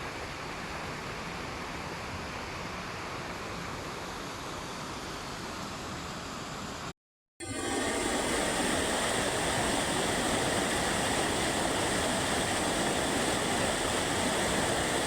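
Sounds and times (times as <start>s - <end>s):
flowing water rushing: 7.4s - 15.0s.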